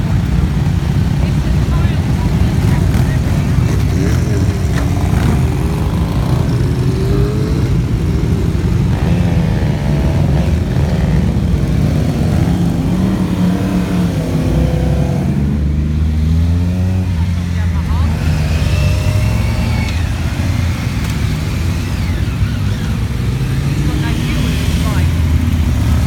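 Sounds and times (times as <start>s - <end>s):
motorcycles passing: 0.0s - 26.0s.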